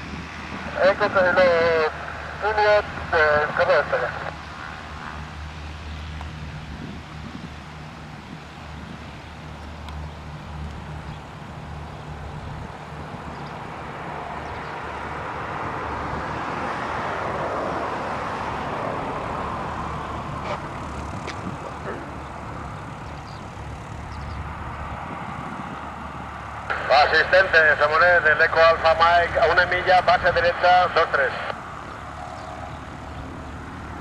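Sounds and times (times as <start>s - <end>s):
propeller aircraft engine: 0.0s - 34.0s
steady low hum: 17.3s - 34.0s.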